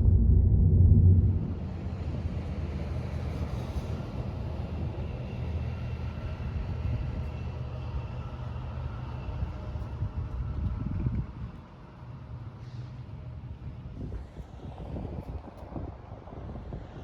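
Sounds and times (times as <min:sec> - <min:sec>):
car engine and road rumble: 0:00.0 - 0:05.7.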